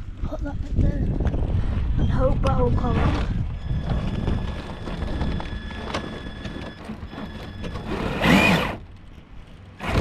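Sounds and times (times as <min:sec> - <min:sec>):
electric motor whining: 0:03.3 - 0:09.0.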